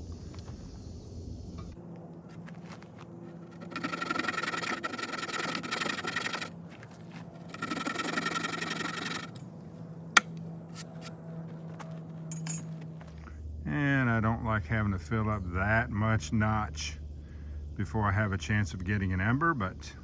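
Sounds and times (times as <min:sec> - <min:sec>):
wooden spindle grinding in fireboard: 0:01.7 - 0:09.4.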